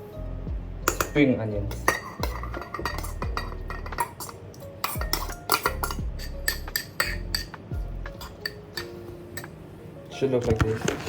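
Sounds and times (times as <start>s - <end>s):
utensil scraping against a bowl: 0.9s - 9.5s.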